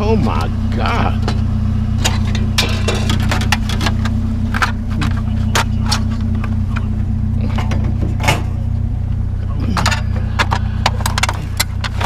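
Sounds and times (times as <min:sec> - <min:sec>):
truck engine idling: 0:00.0 - 0:12.0
scrap metal clanking and scraping: 0:00.2 - 0:08.9, 0:09.6 - 0:12.0.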